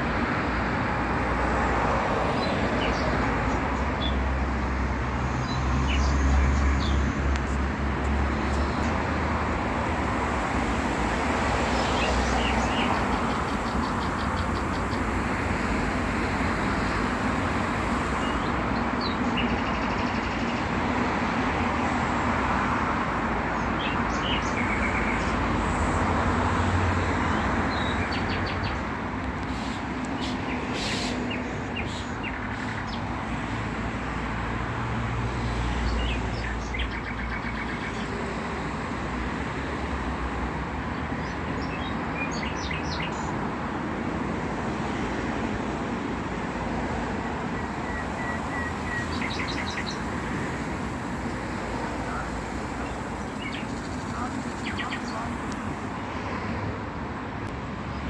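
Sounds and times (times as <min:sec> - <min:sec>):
vehicle rumble: 0:00.0 - 0:23.8, 0:43.3 - 0:58.0
traffic hum: 0:00.0 - 0:58.0
small birds chirping: 0:02.4 - 0:04.3, 0:05.3 - 0:07.1, 0:09.6 - 0:20.8, 0:47.2 - 0:56.0.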